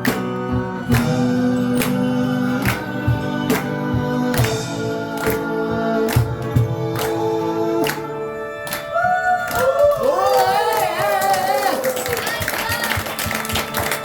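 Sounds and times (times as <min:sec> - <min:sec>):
live band playing pop song: 0:00.0 - 0:09.4
person singing wordless melody: 0:00.0 - 0:09.5.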